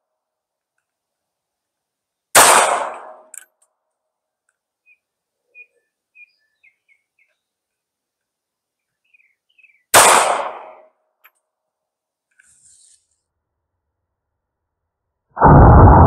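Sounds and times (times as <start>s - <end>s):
pistol shot: 2.4s - 3.3s, 9.9s - 10.8s
faint bird chirps: 4.8s - 7.8s, 8.8s - 9.9s.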